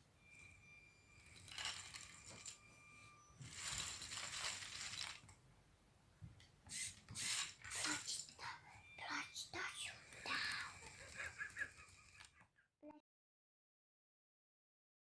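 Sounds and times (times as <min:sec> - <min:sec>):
plastic rattling and clattering: 0:03.4 - 0:05.3.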